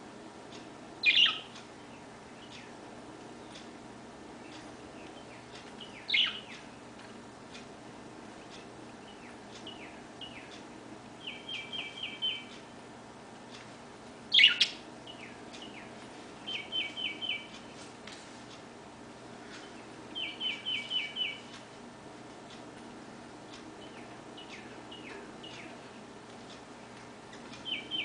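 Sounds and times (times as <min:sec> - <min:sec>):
songbird down-slurred calls: 0:14.3 - 0:15.9.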